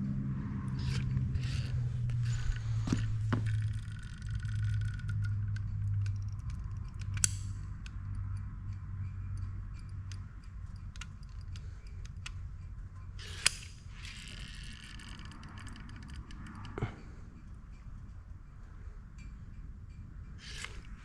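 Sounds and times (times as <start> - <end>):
low hum: 0.0 - 21.0
small parts and tools ticking: 0.5 - 21.0
sharp clicks: 0.7 - 16.8.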